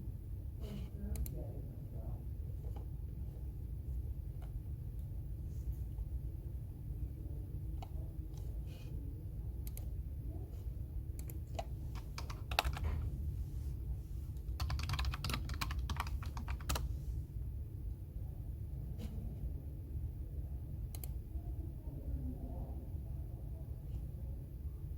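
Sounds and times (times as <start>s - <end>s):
steady low hum: 0.0s - 24.9s
computer keyboard typing: 9.6s - 10.0s, 11.1s - 13.1s, 14.4s - 16.9s.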